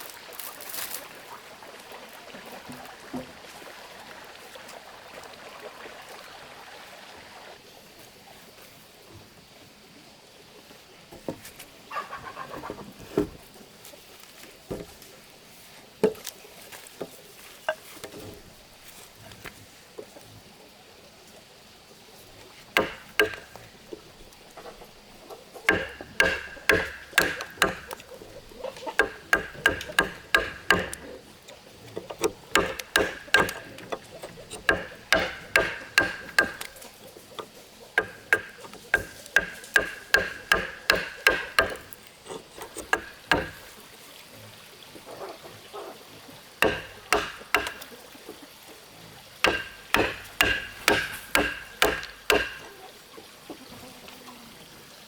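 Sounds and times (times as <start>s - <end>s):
hammer striking metal: 22.8s - 23.5s, 25.7s - 28.0s, 29.0s - 31.1s, 32.5s - 33.8s, 34.6s - 36.7s, 38.0s - 41.9s, 42.9s - 43.6s, 46.6s - 47.8s, 49.5s - 52.6s.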